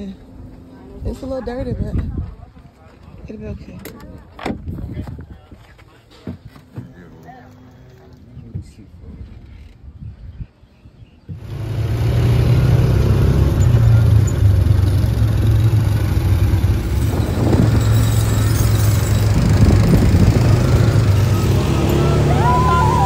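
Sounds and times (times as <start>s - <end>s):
road noise: 11.3s - 23.0s
vehicle engine running: 11.4s - 23.0s.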